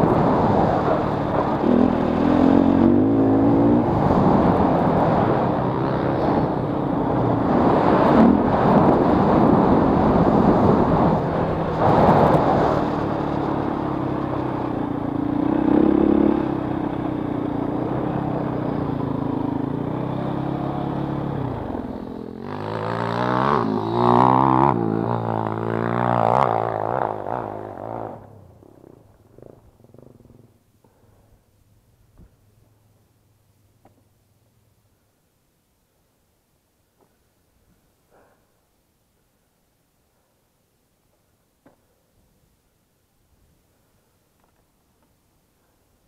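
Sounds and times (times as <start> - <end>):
motocross engine revving: 0.0 - 14.4, 15.1 - 30.5.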